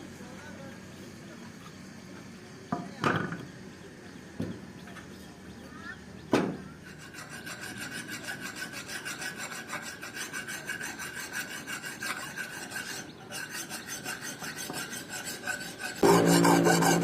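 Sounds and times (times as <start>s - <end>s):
blade rasping against a file: 6.8s - 17.0s
loud sound with low hum: 16.0s - 17.0s.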